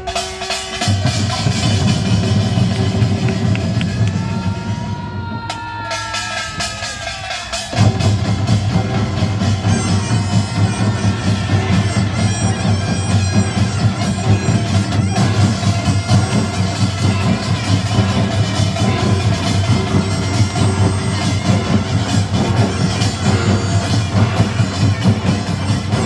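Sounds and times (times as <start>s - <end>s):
gongs and drums beating: 0.0s - 26.0s
nasal shawm playing: 8.7s - 26.0s.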